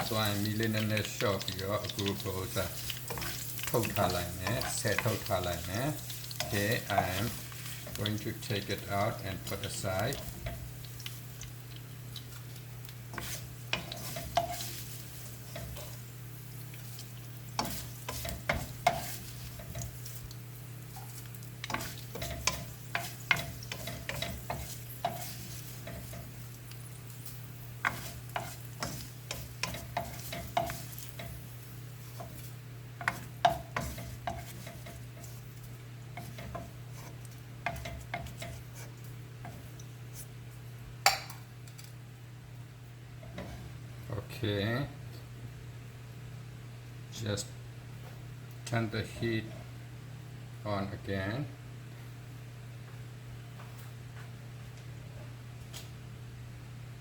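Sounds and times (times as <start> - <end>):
metal utensil scraping pan: 0.0 - 8.7, 13.1 - 16.0, 17.6 - 19.9, 21.0 - 26.3, 27.8 - 31.4, 33.0 - 35.4
oil sizzling: 0.0 - 41.9.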